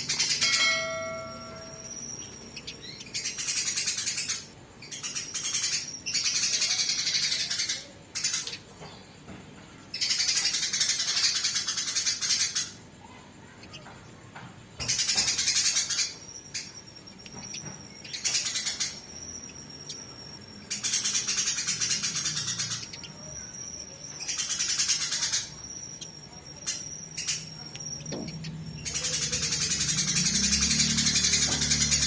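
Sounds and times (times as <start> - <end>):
sparrows harsh chatter: 0.0 - 32.0.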